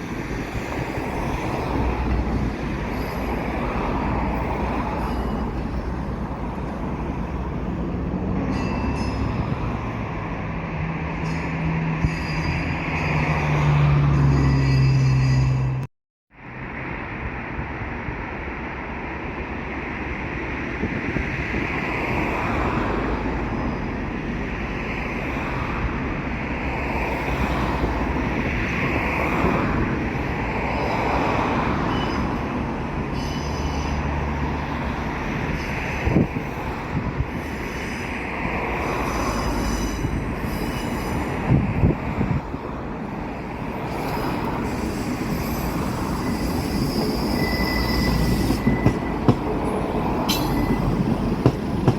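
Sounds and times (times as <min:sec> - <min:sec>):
train wheels rumbling on rail: 0:00.0 - 0:15.9, 0:16.7 - 0:51.9
faint wheel squeal: 0:44.2 - 0:49.3, 0:50.3 - 0:51.0.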